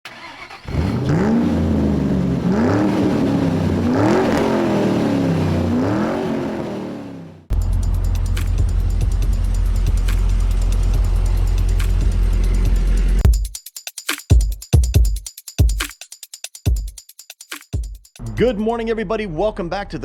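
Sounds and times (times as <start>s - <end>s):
car engine revving: 0.1s - 13.2s.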